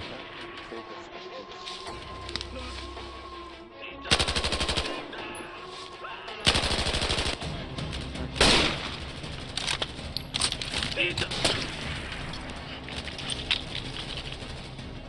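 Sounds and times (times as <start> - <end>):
machine-gun fire: 4.1 - 5.0, 6.5 - 7.5, 8.4 - 10.0.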